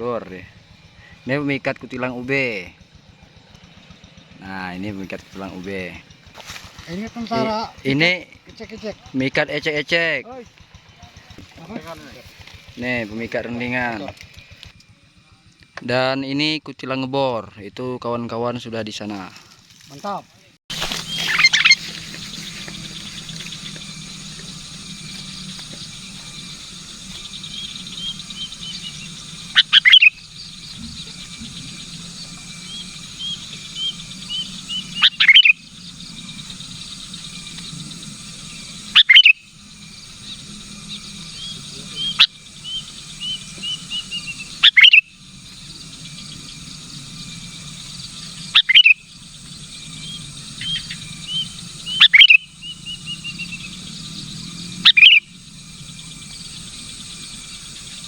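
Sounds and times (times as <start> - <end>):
steady low hum: 0.0 - 58.0
bird chirping calls: 20.7 - 58.0.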